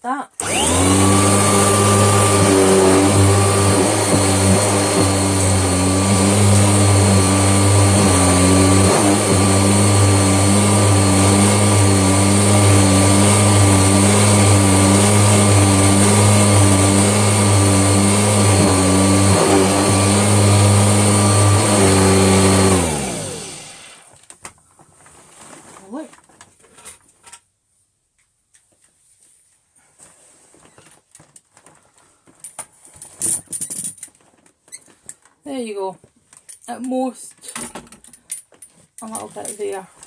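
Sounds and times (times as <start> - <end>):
vacuum cleaner running: 0.4 - 24.1.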